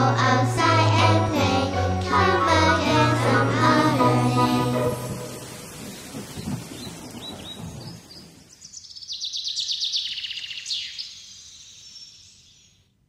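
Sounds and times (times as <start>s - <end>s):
songbird chirping: 4.0s - 13.0s
bird trill: 6.3s - 12.9s.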